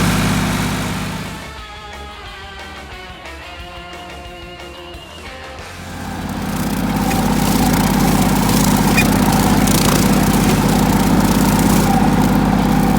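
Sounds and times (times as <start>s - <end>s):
tractor engine running: 0.0s - 1.5s, 5.7s - 12.9s.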